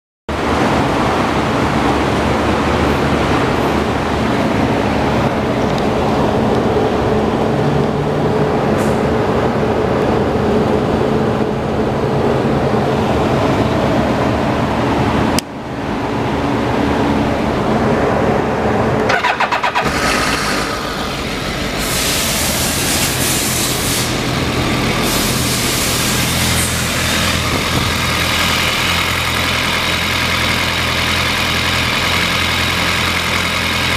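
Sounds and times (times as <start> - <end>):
motorcycle engine running: 19.1 - 33.9.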